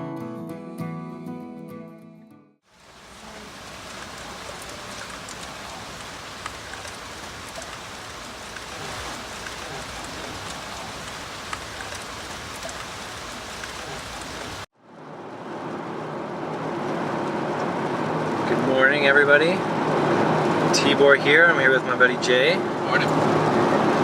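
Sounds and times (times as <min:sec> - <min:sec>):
steady rain falling: 0:02.7 - 0:24.0
raindrops ticking: 0:02.8 - 0:14.7.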